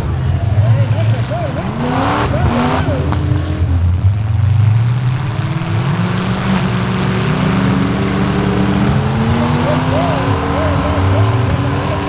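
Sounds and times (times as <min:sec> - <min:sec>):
truck engine running hard: 0:00.0 - 0:12.0.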